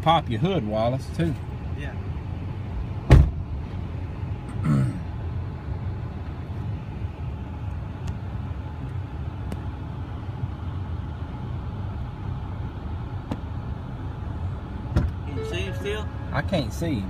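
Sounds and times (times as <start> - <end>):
truck engine idling: 5.1 - 17.0.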